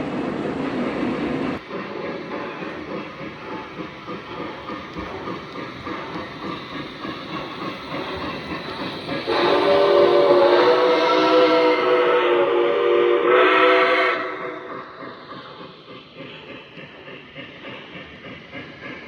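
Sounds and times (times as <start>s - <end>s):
model train rolling on track: 0.0s - 19.0s
train whistle chord: 9.3s - 14.7s.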